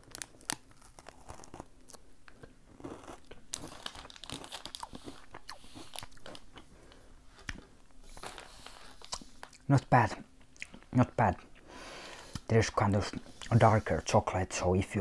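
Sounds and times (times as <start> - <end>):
person chewing crunchy bar: 0.0 - 9.7.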